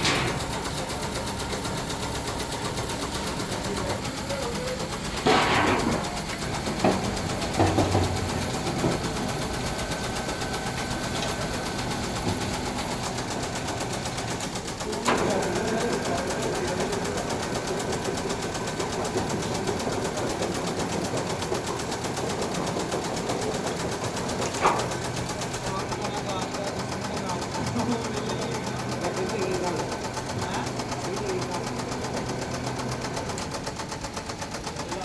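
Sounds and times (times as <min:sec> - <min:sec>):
metalworking machinery humming: 0:00.0 - 0:35.0
loud knocks: 0:05.2 - 0:09.1.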